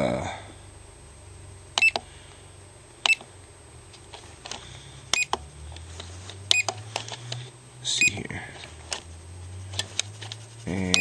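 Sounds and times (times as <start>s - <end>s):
short electronic key beeps: 1.8s - 2.0s, 3.0s - 3.2s, 5.1s - 5.4s.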